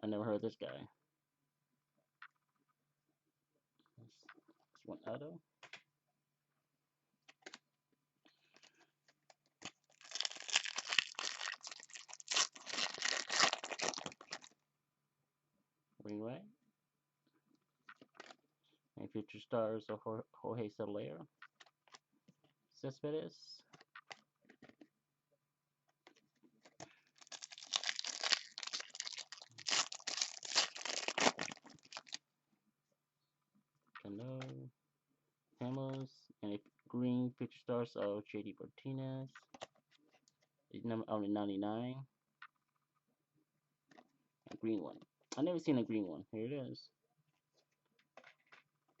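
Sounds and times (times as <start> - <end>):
foil wrapper tearing and crinkling: 9.6 - 14.5, 27.2 - 32.2.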